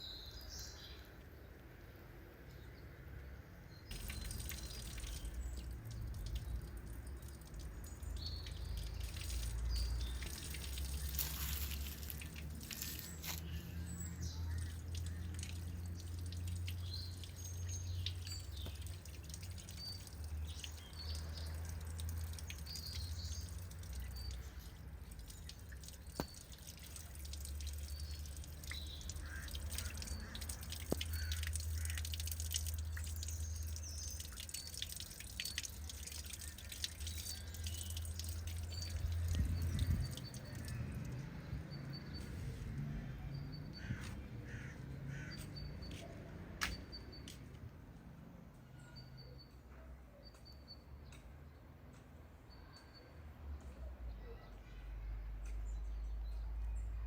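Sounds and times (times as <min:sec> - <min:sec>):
small birds chirping: 0:03.7 - 0:47.5.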